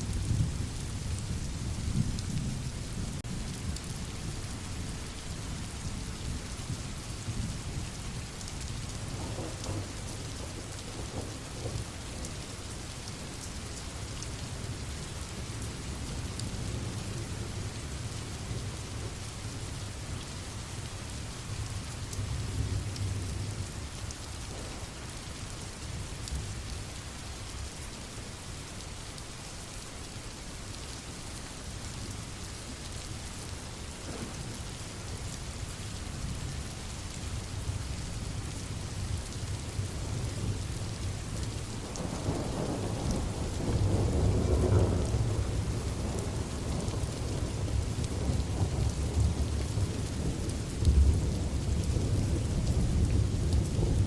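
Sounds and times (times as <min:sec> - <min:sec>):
steady rain: 0:00.0 - 0:54.0
rolling thunder: 0:09.1 - 0:12.3, 0:41.9 - 0:54.0.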